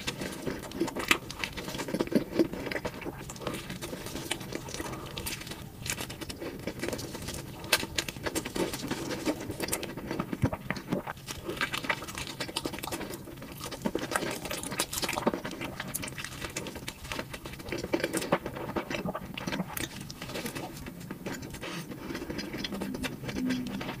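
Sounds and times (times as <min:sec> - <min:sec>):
chewing crunchy food: 0:00.0 - 0:24.0
wet mouth sounds: 0:17.7 - 0:24.0.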